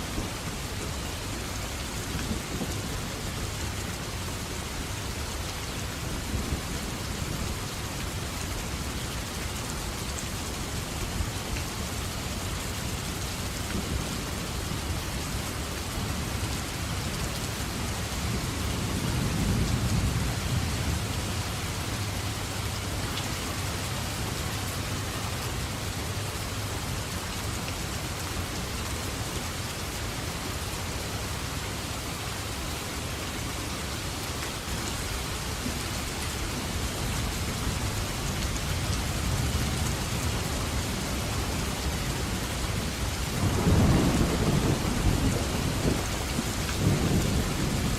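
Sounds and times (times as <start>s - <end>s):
heavy rain falling: 0.0s - 47.9s
distant thunder rumbling: 42.9s - 47.9s.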